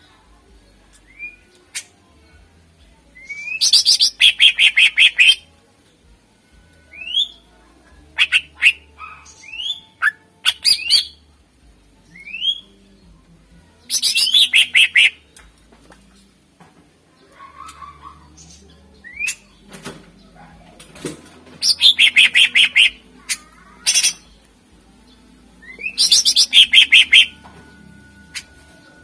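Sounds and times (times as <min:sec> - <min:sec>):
bird singing whistles: 0:03.2 - 0:05.4, 0:12.2 - 0:12.6, 0:25.6 - 0:27.4.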